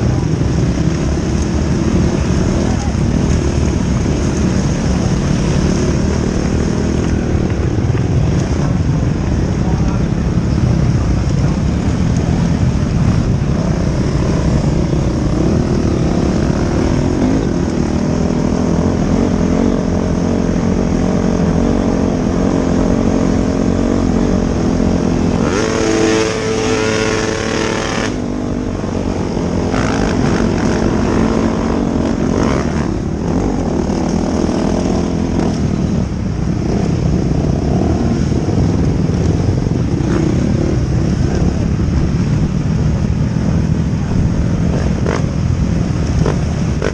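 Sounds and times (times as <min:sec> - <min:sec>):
motocross motorcycles running: 0:00.0 - 0:46.9
motorcycle engine revving: 0:00.0 - 0:46.9.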